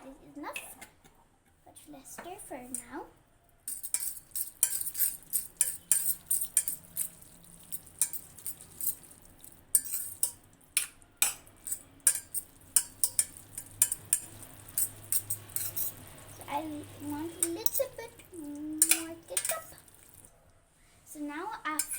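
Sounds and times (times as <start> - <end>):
utensil scraping a pot: 3.7 - 20.3.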